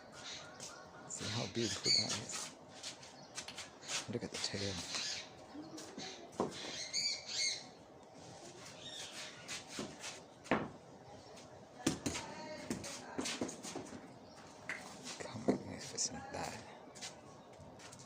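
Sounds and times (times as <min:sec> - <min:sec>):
bird chirping: 0:00.0 - 0:08.0, 0:08.6 - 0:11.5.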